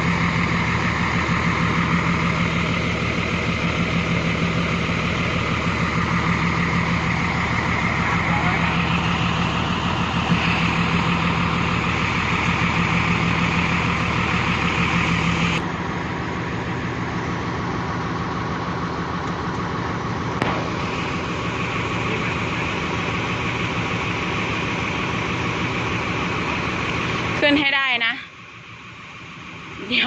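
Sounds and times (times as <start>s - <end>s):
diesel truck engine under load: 0.0s - 30.0s.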